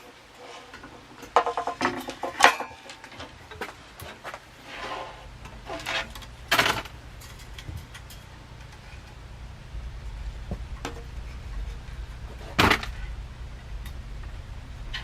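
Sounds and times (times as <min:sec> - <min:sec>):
metal hardware clinking: 0:00.8 - 0:04.2.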